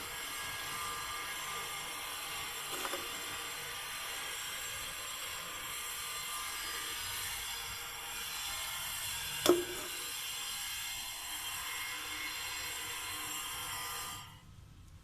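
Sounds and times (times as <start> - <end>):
sharp ringing knock: 9.4 - 10.1.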